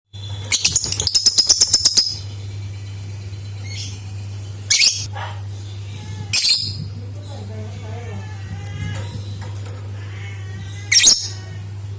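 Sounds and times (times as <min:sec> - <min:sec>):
steady low hum: 0:00.2 - 0:11.9
lovebird chattering trill: 0:00.5 - 0:04.0.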